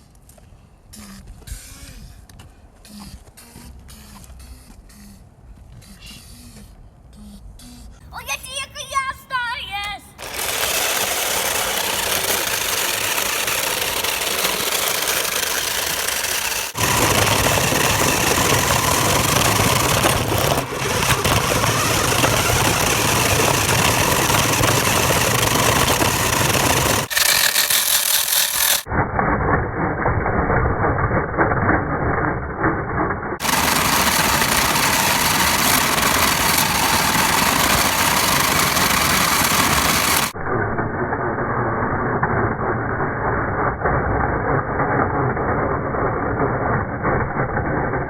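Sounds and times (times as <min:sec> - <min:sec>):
vehicle engine running: 0:10.2 - 0:28.9, 0:33.4 - 0:40.4.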